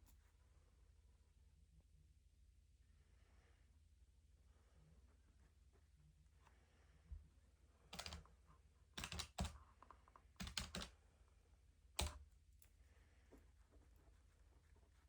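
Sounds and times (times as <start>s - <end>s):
faint background hum: 0.0s - 15.0s.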